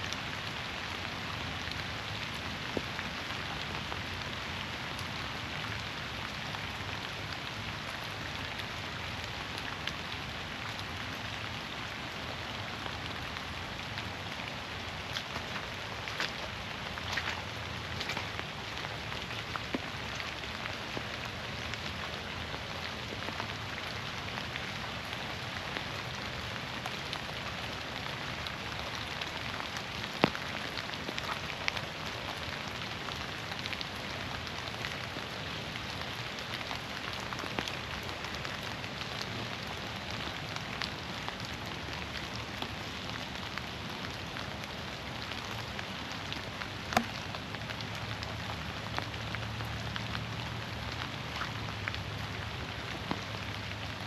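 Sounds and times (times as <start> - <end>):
steady rain hiss: 0.0 - 54.0
water drip ticks: 12.8 - 44.2, 45.3 - 54.0.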